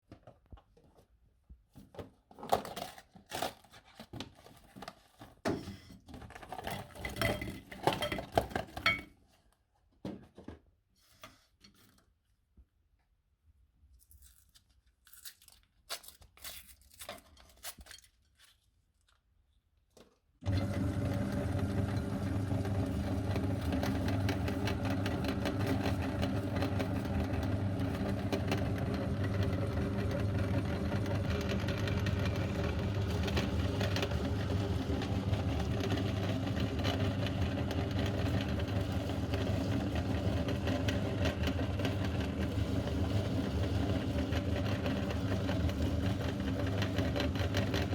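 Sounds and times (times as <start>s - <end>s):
meat grinder motor hum: 20.4s - 47.9s.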